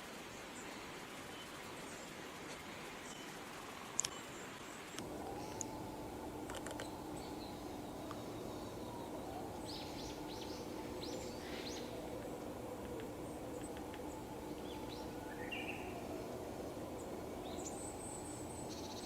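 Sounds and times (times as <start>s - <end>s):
small birds chirping: 4.0s - 19.0s
steady low hum: 5.0s - 19.0s.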